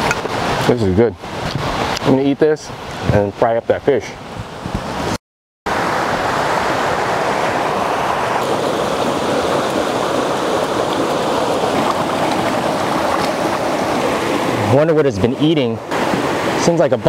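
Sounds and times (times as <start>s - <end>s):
ocean surf rushing: 4.1s - 17.0s.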